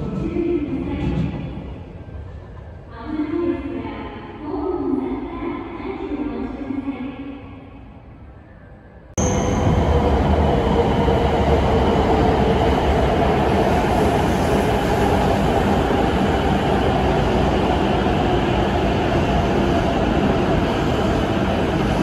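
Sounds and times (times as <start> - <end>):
train wheels rumbling: 9.2 - 22.0.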